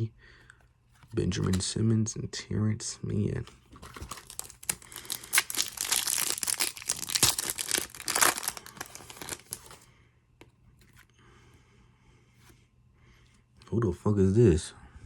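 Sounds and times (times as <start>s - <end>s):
plastic wrapper tearing and crinkling: 3.8s - 9.8s.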